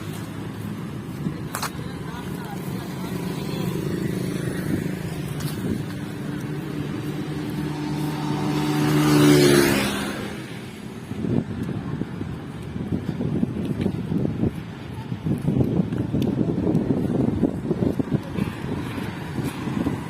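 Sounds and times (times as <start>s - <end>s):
vehicle engine passing by: 2.0s - 11.0s.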